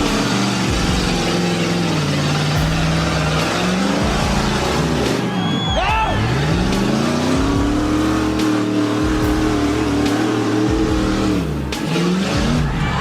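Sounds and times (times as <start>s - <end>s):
vehicle engine revving: 0.0s - 13.0s.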